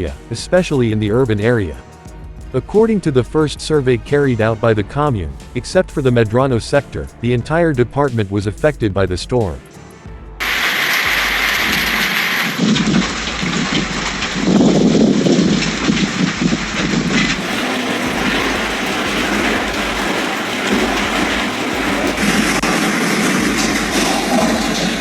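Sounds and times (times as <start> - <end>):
heavy storm rain: 10.4 - 25.0.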